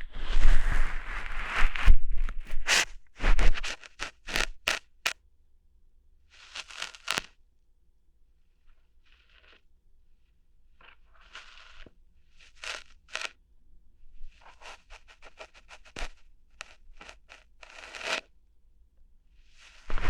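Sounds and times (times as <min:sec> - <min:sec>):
ear hair plucking crackles: 0:01.2 - 0:05.2, 0:06.4 - 0:07.3, 0:11.2 - 0:13.4, 0:14.4 - 0:18.3.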